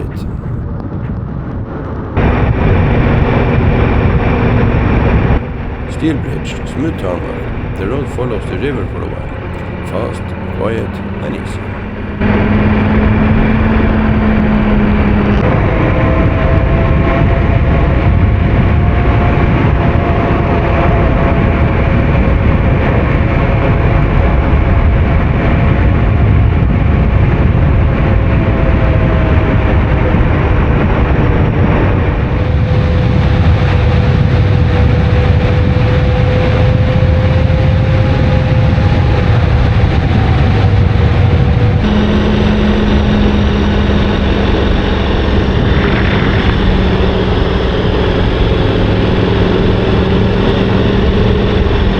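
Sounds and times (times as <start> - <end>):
heavy rushing noise: 2.2 - 18.8, 37.6 - 51.9.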